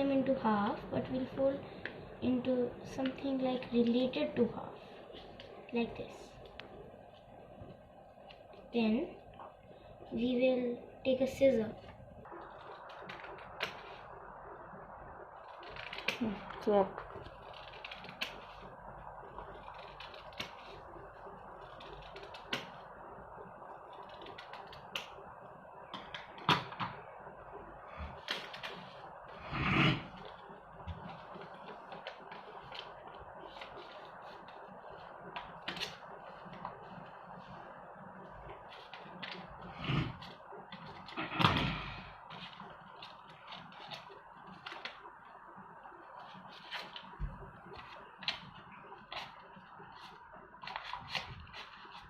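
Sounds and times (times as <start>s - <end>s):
low steady hiss: 0.0s - 52.0s
paper clicks and rustles: 15.4s - 18.7s, 28.0s - 29.1s, 30.1s - 37.6s, 42.3s - 45.0s, 46.1s - 52.0s
scissors snipping paper: 19.6s - 20.8s.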